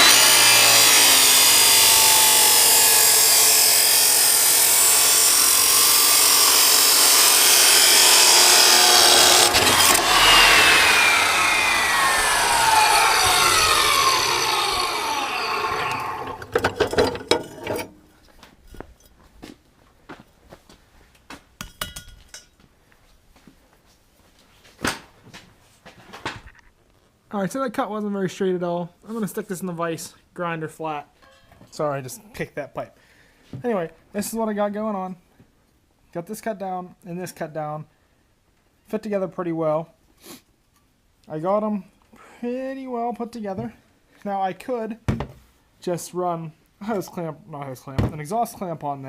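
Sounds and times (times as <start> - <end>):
saw motor winding down: 0.0 - 16.7
chop saw grinding through pipe: 0.0 - 18.0
sharp clanks and knocks: 15.9 - 18.1, 21.6 - 22.6, 31.2 - 31.8.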